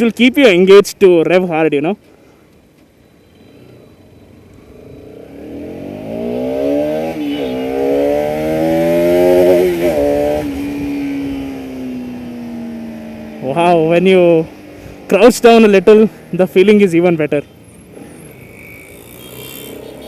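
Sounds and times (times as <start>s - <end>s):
motorcycle engine revving: 3.6s - 16.6s, 17.4s - 20.0s.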